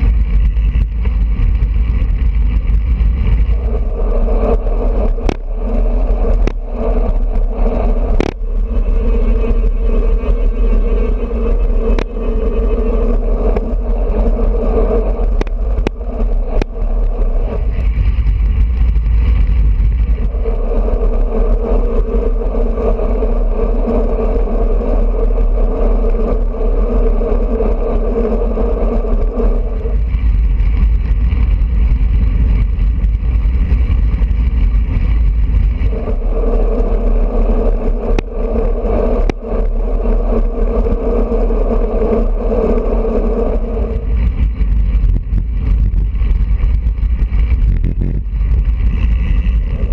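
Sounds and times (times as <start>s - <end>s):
sharp ticks: 0.0s - 20.4s, 28.8s - 42.9s
bicycle road noise: 0.0s - 49.9s
wind rushing over microphone: 0.0s - 49.9s.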